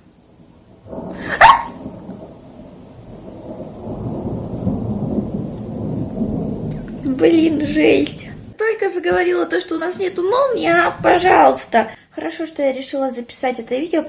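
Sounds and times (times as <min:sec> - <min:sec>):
thunder crack and rumble: 0:00.0 - 0:09.2, 0:10.4 - 0:11.7.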